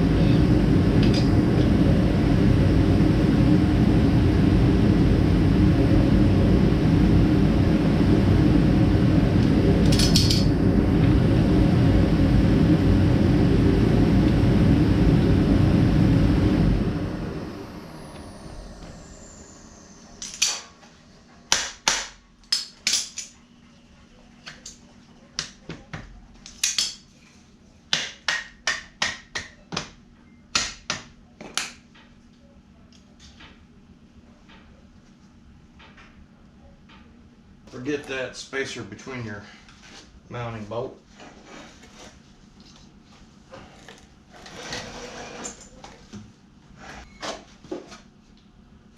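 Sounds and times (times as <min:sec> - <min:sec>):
fan spinning down whine: 0:00.0 - 0:26.3
electric fan running: 0:00.0 - 0:48.9.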